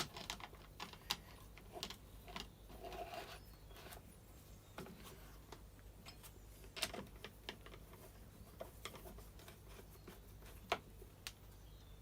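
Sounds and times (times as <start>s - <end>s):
small parts clicking and tapping: 0.0s - 4.0s.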